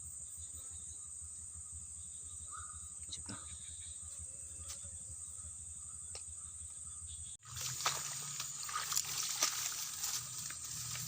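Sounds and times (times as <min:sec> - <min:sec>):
insects chirring: 0:00.0 - 0:11.0
small water splashes: 0:07.4 - 0:11.0
water sloshing and trickling: 0:07.4 - 0:11.0.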